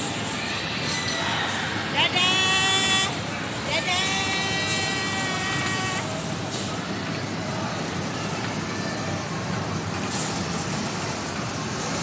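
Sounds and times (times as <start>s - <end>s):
moving train running noise: 0.0s - 12.0s.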